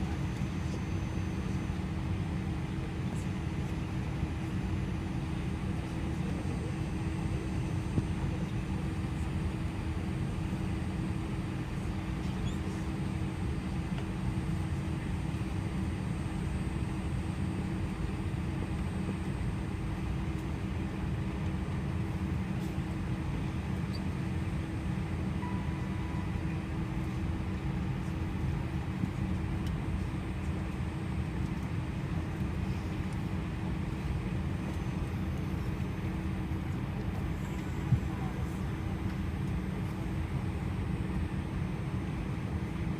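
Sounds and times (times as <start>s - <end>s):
constant low hum: 0.0s - 42.9s
rush of air in aircraft cabin: 31.3s - 42.9s.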